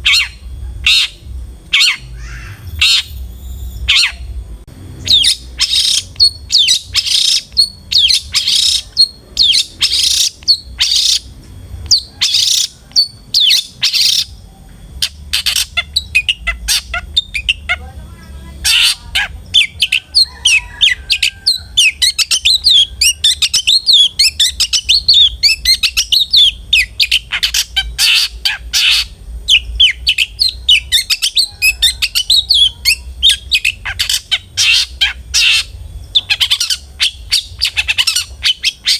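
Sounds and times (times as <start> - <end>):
harsh rasping bird calls: 0.0 - 38.9
twittering bird song: 0.0 - 38.9.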